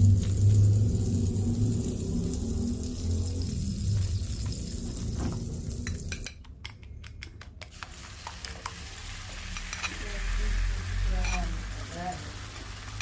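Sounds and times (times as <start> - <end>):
frying sizzle: 0.0 - 6.4, 7.7 - 13.0
utensil clicking against a dish: 5.8 - 8.8.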